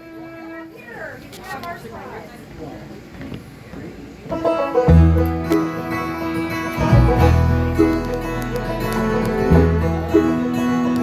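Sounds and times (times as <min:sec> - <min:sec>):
banjo picking: 0:04.3 - 0:11.0
guitar picking: 0:04.3 - 0:11.0
bass line: 0:04.8 - 0:11.0.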